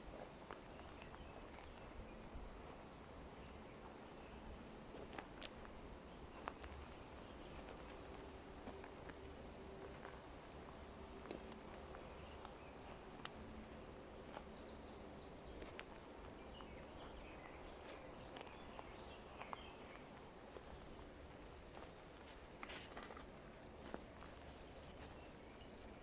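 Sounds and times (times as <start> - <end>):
soft clicks and crackles: 4.9 - 10.2, 11.1 - 13.6, 15.5 - 17.2, 17.8 - 26.0.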